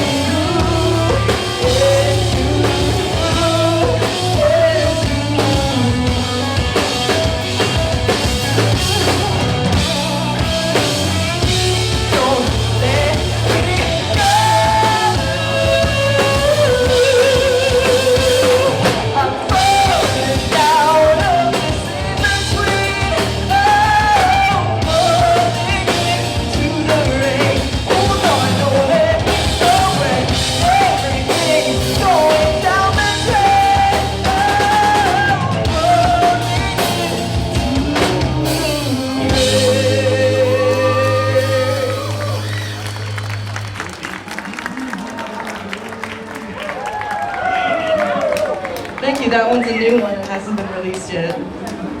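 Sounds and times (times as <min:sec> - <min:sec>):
person singing: 0:00.0 - 0:07.4, 0:08.6 - 0:42.6
live rock band: 0:00.0 - 0:52.0.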